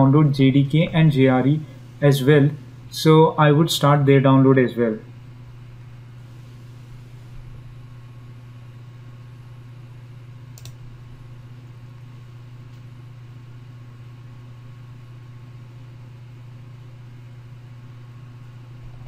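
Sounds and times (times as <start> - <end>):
low electrical hum: 0.0 - 19.0
faint click: 10.5 - 10.8.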